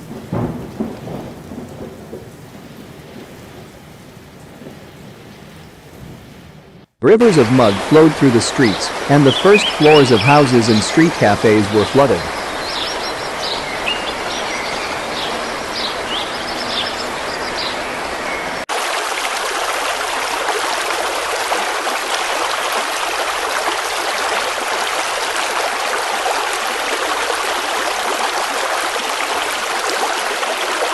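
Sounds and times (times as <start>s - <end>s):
floodwater rushing: 0.0s - 5.3s, 7.0s - 30.9s
birds chirping: 7.2s - 18.6s.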